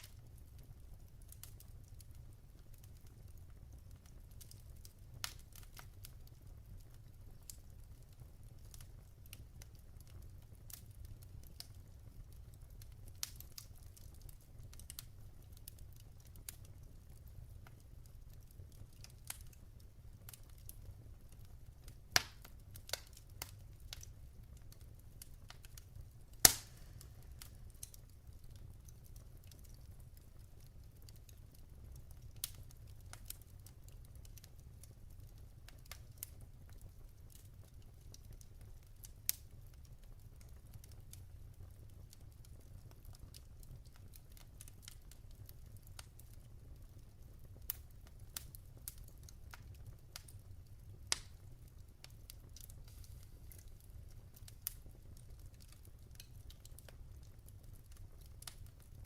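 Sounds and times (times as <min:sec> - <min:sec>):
wood fire crackling: 0:00.0 - 0:59.0
loud sharp pops of logs: 0:26.4 - 0:27.0.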